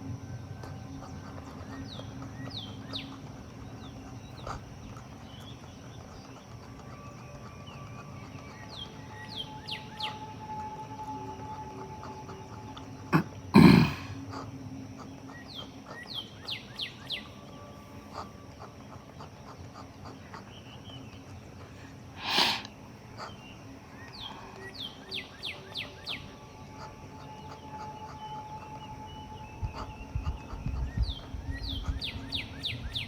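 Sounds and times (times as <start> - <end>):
bird whistling song: 0.6 - 13.2, 15.0 - 19.1, 22.2 - 33.0
breathy sniff or sneeze: 13.2 - 14.2, 22.2 - 22.7
person coughing: 13.2 - 14.2.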